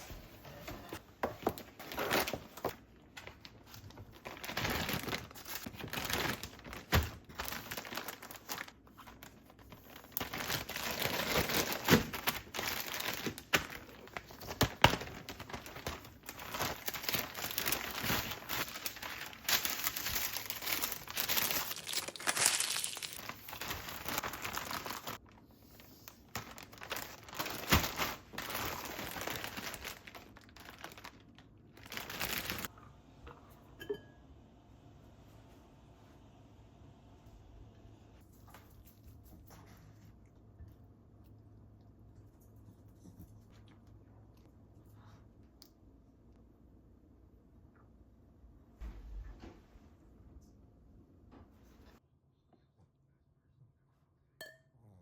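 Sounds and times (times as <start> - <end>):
plastic packaging crinkling: 1.6 - 25.5, 26.2 - 32.7.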